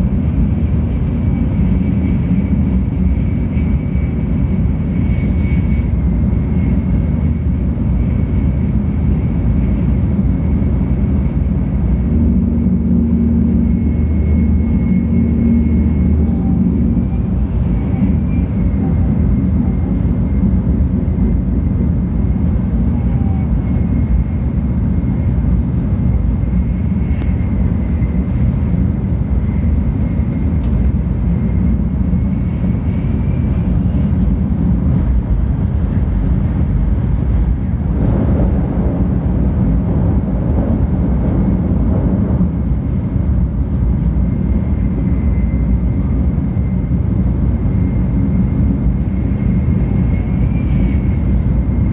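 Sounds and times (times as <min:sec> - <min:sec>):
train cabin low rumble: 0:00.0 - 0:51.9
rushing noise: 0:31.9 - 0:51.9.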